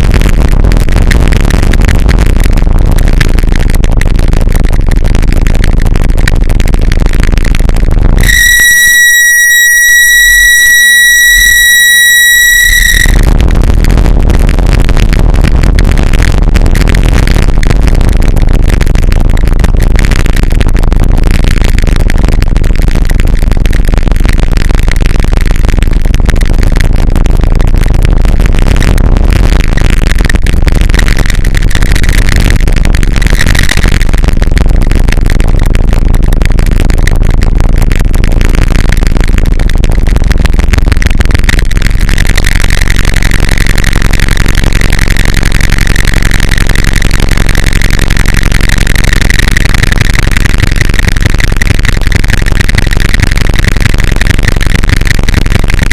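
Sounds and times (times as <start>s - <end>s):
wall of distorted noise: 0.0s - 55.9s
steady high pure tone: 6.8s - 15.8s.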